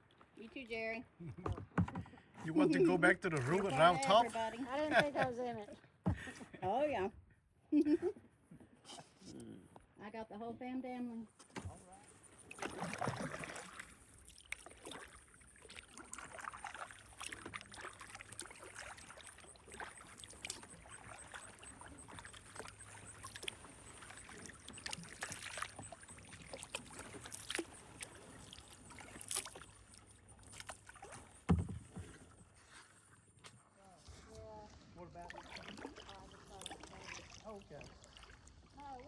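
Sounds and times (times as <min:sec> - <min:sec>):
paddle splashing in water: 0:01.4 - 0:05.2, 0:11.4 - 0:39.0
water dripping: 0:15.6 - 0:31.2.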